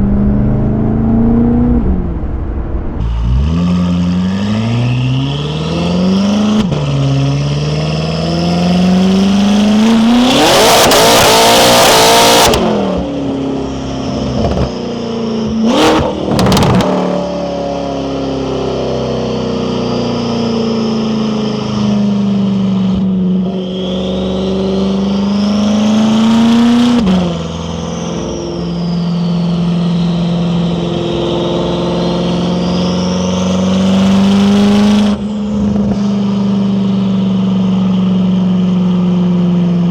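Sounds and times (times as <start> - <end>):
loud rushing surge: 0.0 - 3.8
car engine revving: 0.0 - 19.4, 20.0 - 39.3
turbo whistle: 23.3 - 34.1.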